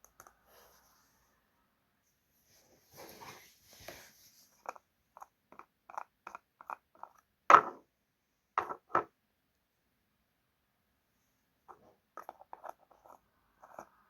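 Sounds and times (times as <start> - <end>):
items knocking on hard surface: 7.5 - 7.8, 8.6 - 9.1.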